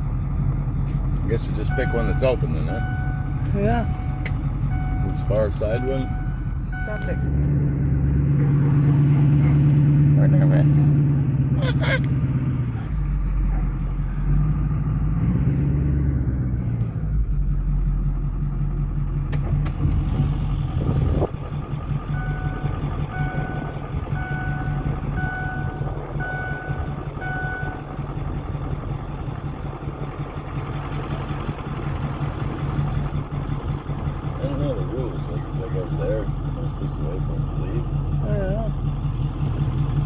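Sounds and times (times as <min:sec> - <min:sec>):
vehicle engine running: 0:00.0 - 0:40.0
reversing beeper: 0:01.6 - 0:07.4, 0:22.1 - 0:28.0.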